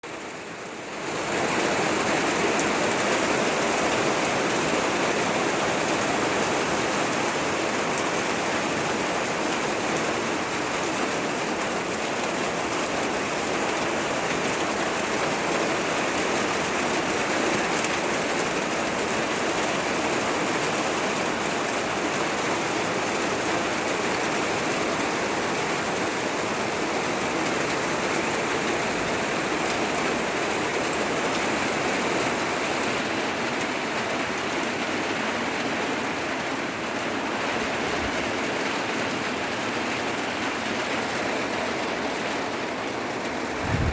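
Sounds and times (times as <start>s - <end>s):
rain falling: 0.1s - 43.9s.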